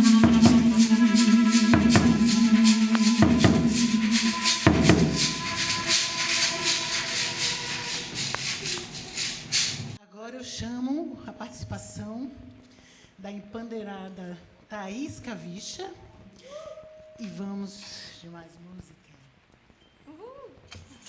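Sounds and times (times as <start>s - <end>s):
deep drum strikes: 0.0s - 6.9s
held low note: 0.0s - 9.7s.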